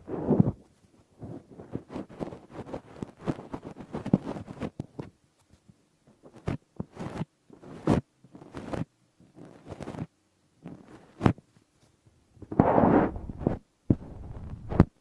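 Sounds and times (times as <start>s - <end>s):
rubbing and rustling on microphone: 0.0s - 15.0s.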